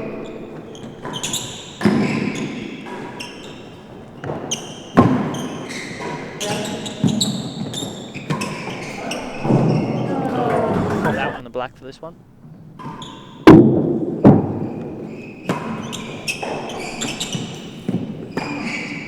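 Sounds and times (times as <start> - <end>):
ball knocking off walls: 8.8 - 11.4.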